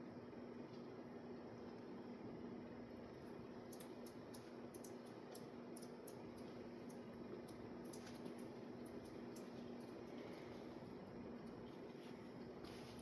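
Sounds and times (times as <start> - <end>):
ceiling fan hum: 0.0 - 13.0
faint high ticks: 3.7 - 10.3.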